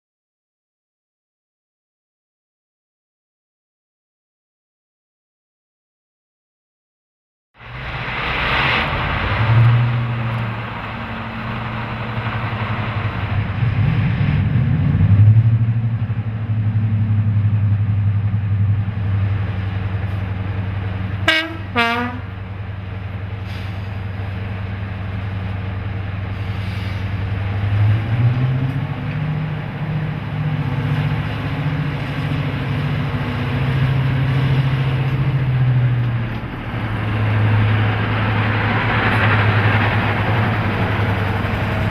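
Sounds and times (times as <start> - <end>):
diesel locomotive engine droning: 7.6 - 41.9
locomotive horn blasts: 21.2 - 22.4.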